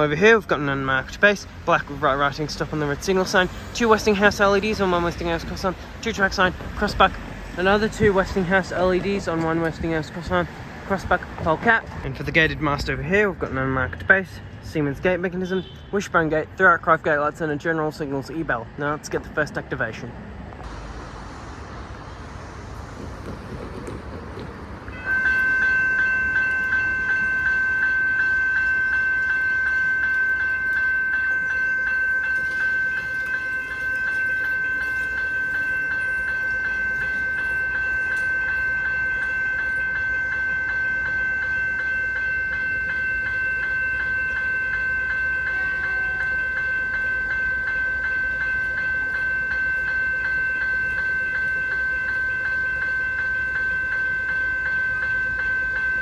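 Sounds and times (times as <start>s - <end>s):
level crossing bell ringing: 23.0s - 56.0s.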